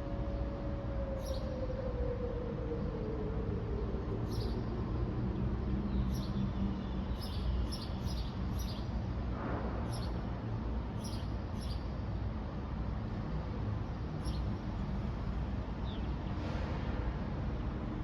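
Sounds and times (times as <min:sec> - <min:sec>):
low outdoor rumble: 0:09.0 - 0:18.0.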